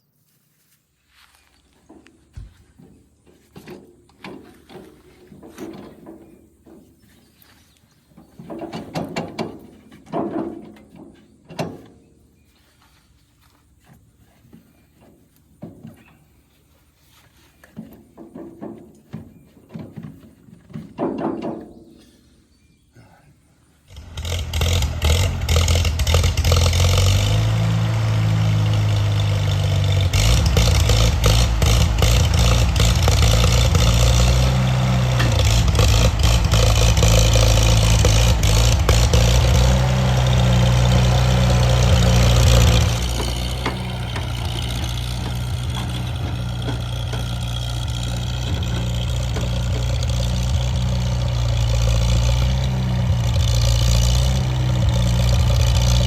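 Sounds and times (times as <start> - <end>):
tractor engine starting and revving: 2.8 - 12.0, 23.8 - 56.0.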